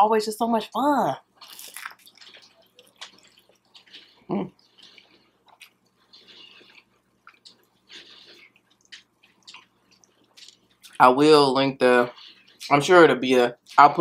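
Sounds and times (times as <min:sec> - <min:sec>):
chewing crunchy food: 0:01.2 - 0:14.0
wet mouth clicks: 0:01.4 - 0:11.0.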